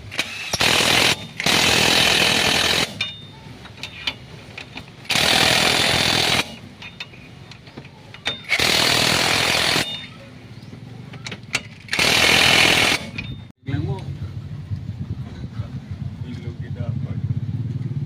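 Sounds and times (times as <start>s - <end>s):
power tool bursts: 0.0s - 3.2s, 5.1s - 6.6s, 8.3s - 10.1s, 11.8s - 13.4s.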